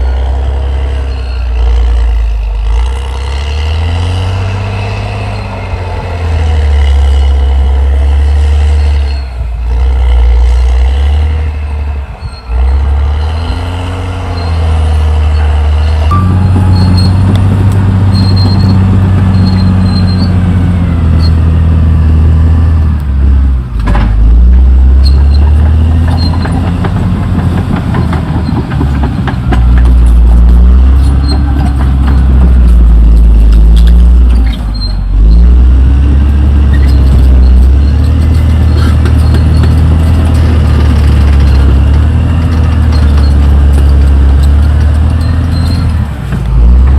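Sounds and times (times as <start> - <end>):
bulldozer diesel engine under load: 0.0 - 46.9.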